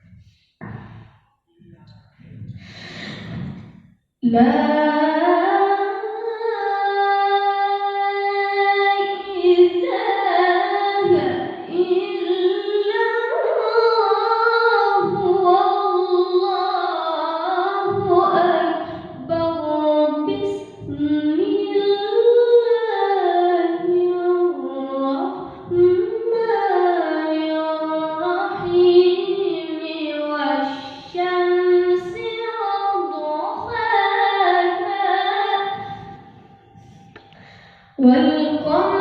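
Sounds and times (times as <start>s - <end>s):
boy chanting melodically: 7.2s - 37.3s, 38.0s - 39.0s.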